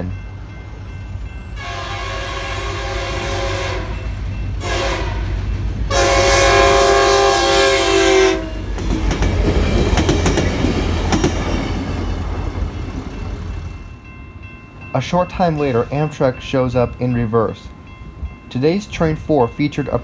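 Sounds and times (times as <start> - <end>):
train rumbling past: 0.0 - 20.0
train horn blasts: 1.6 - 8.8
wheels clicking over rail joints: 8.7 - 13.6.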